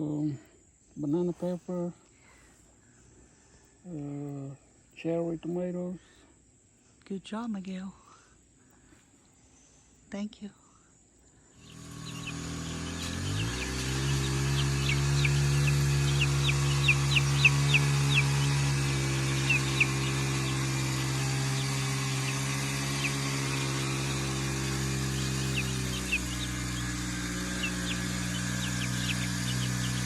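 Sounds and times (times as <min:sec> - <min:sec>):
chicks peeping: 0:11.6 - 0:30.0
motor humming: 0:11.6 - 0:30.0.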